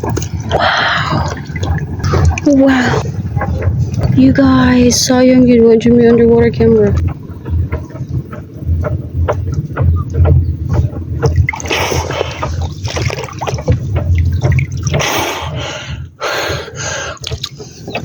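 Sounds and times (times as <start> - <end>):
water dripping: 0.0 - 15.7, 16.8 - 18.0
low rumble: 0.0 - 16.2
water splashing and sloshing: 0.0 - 18.0.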